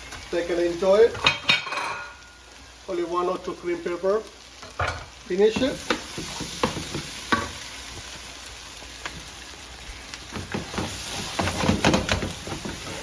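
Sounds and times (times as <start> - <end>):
chicken sizzling in a pan: 0.0 - 13.0
stirring knocks and scrapes: 10.3 - 13.0.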